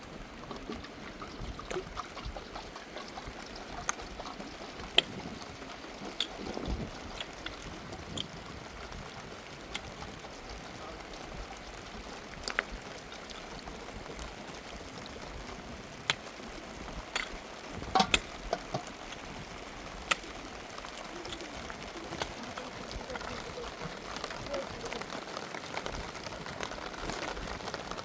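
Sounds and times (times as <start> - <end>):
rain hissing: 0.0 - 28.0
sharp clicks and taps: 17.0 - 19.3, 20.0 - 20.4.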